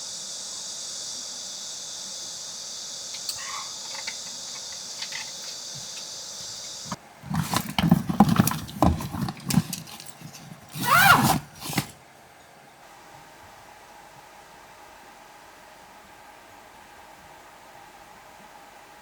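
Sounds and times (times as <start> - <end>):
high insect buzzing: 0.0 - 7.0
knocks and clatter: 7.3 - 10.8.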